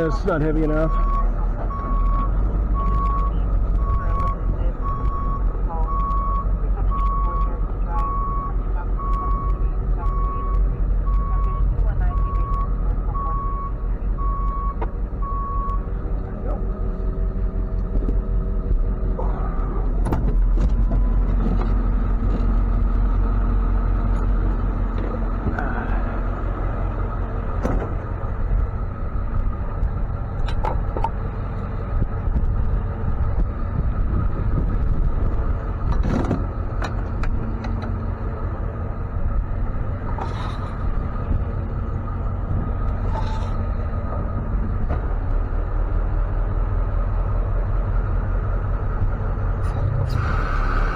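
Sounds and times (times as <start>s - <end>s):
truck engine rumbling: 0.0s - 50.9s
sharp clunks and rattles: 17.8s - 23.2s, 27.3s - 28.7s, 29.4s - 31.3s, 32.0s - 38.1s.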